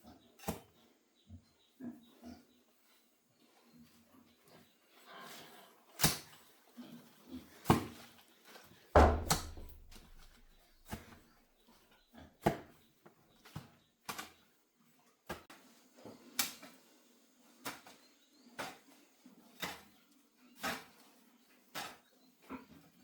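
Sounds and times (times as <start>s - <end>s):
hoe chopping into ground: 9.0s - 10.5s.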